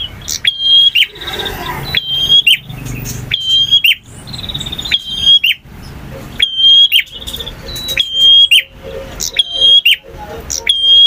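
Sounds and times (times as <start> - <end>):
bird singing trilled whistles: 1.9 - 5.6, 6.4 - 10.0.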